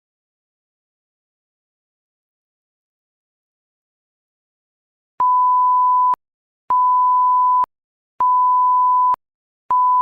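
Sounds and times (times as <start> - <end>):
electronic beep tone: 5.2 - 10.0.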